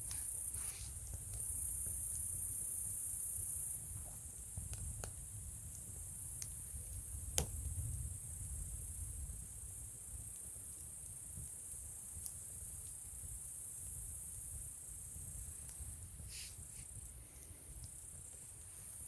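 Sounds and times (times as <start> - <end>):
campfire rumble: 0.0 - 19.0
fire crackles: 0.0 - 19.0
sharp pop of fire: 7.2 - 8.1.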